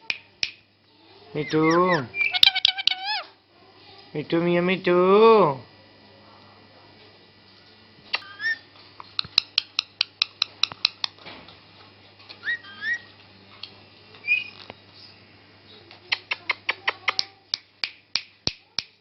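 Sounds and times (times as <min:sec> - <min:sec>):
parrot whistled chirps: 0:01.4 - 0:03.3, 0:08.2 - 0:08.7, 0:12.4 - 0:13.1, 0:14.2 - 0:14.6
sharp clicks: 0:09.0 - 0:11.2.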